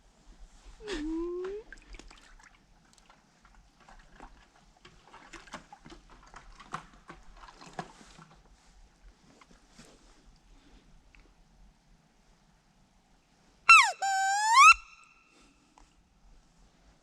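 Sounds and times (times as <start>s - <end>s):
small clicks and rustles: 2.8s - 10.5s.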